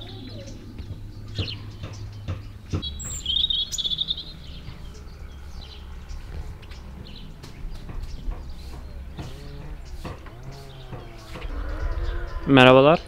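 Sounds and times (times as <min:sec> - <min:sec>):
small bird chirping: 0:00.0 - 0:13.0
sharp knocks: 0:07.4 - 0:11.8.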